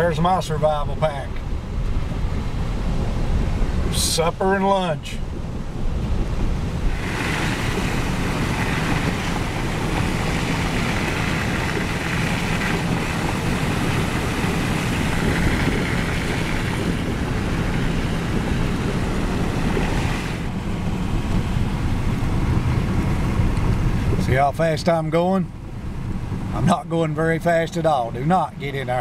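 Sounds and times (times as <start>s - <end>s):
engine and tyres rumbling: 0.0s - 29.0s
rushing hiss: 6.9s - 20.5s.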